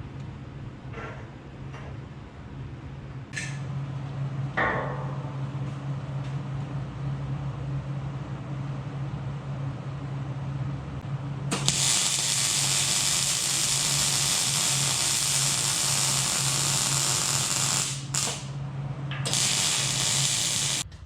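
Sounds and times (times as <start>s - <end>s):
welder arc sizzling: 11.5s - 18.6s, 19.2s - 20.9s.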